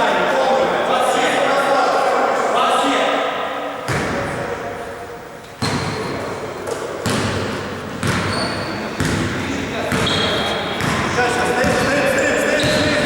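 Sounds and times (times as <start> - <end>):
basketball bouncing on gym floor: 6.7 - 13.0.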